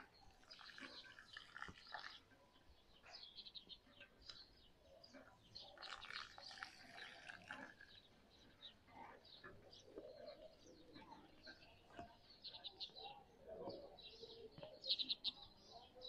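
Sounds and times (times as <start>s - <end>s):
faint bird chirping: 0.0s - 16.0s.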